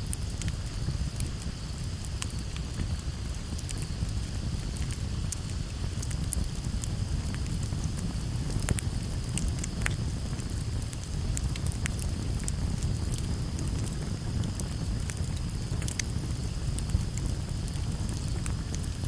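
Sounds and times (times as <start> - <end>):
campfire crackles and pops: 0.0 - 19.0
low fire rumble: 0.0 - 19.0.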